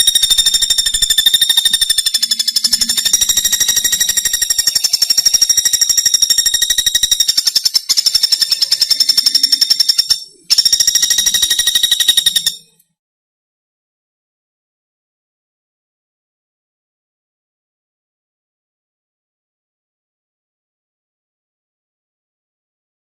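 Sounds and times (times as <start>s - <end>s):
woodpecker rattling trill: 0.0s - 12.8s.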